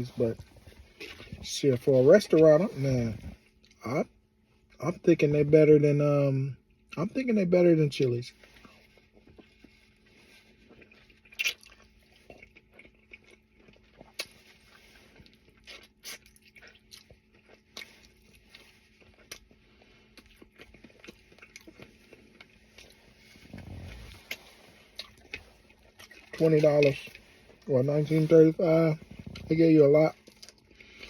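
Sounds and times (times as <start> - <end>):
person chewing food: 0.0 - 1.5, 8.4 - 31.0
wet mouth clicks and smacks: 11.2 - 12.5.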